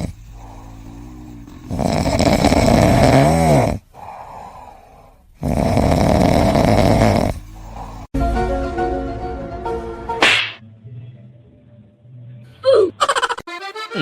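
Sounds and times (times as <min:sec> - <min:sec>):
quiet breath: 0:00.0 - 0:01.8, 0:03.8 - 0:05.4, 0:07.3 - 0:08.1
loud rough snoring: 0:00.0 - 0:04.6, 0:05.4 - 0:08.1.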